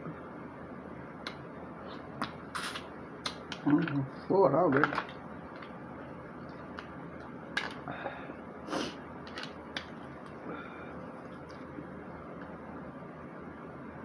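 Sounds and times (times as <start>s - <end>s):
mouth clicks and smacks: 1.2s - 3.7s
breath through nose: 7.9s - 9.0s.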